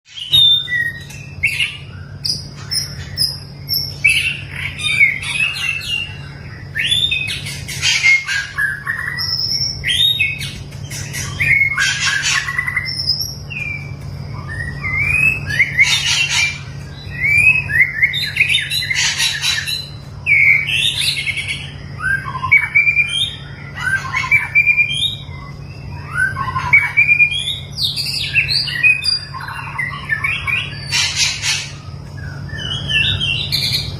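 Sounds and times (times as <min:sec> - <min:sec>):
bird singing whistled notes: 0:00.1 - 0:33.9
steady low hum: 0:00.1 - 0:33.9.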